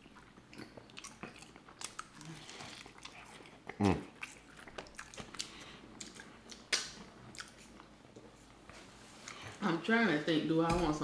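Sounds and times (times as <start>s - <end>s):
wet chewing with crunches: 0.0s - 8.4s.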